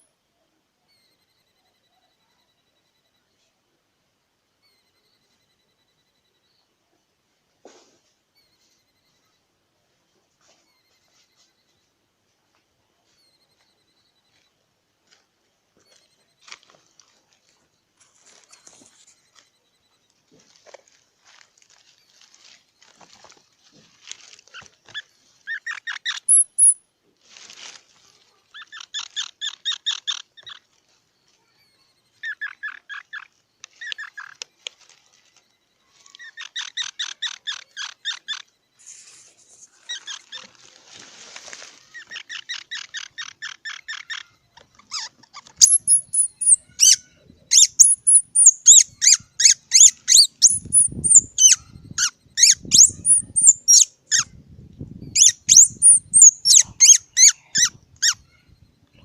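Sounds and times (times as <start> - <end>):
squirrel high squeaks: 24.4 - 26.8, 28.5 - 30.8, 31.4 - 34.6, 35.5 - 40.8, 41.5 - 54.4, 55.0 - 58.7
squirrel chattering: 25.5 - 26.8, 28.5 - 30.6, 31.7 - 34.4, 36.2 - 38.5, 39.8 - 40.5, 42.0 - 54.3, 55.1 - 58.4.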